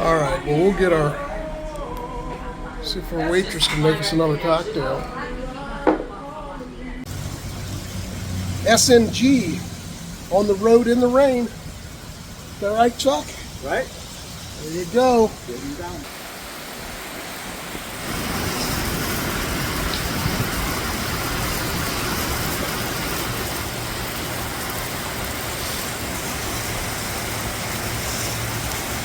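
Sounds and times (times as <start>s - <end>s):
heavy rain: 7.1s - 29.0s
wet road noise: 7.1s - 29.0s.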